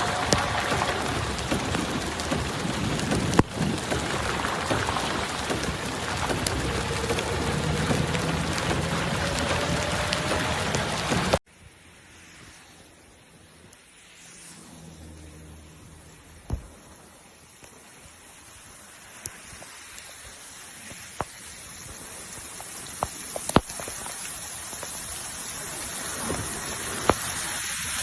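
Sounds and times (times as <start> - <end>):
heavy rain pouring: 0.0 - 12.6, 13.9 - 28.0.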